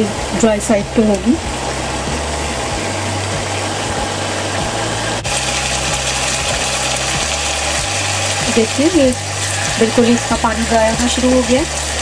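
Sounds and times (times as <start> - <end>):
food sizzling in wok: 0.0 - 12.0
low hum: 0.0 - 12.0.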